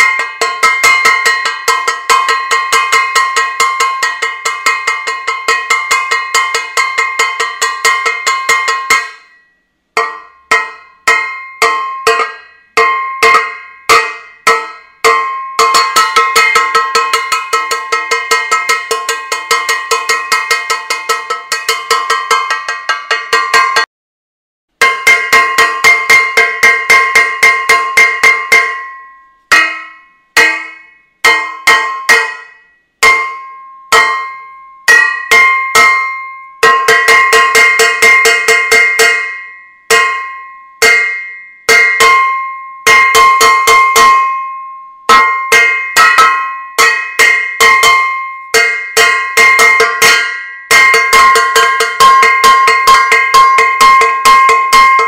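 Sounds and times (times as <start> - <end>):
metal saucepan banging: 0.0 - 9.4, 10.0 - 23.9, 45.1 - 55.0.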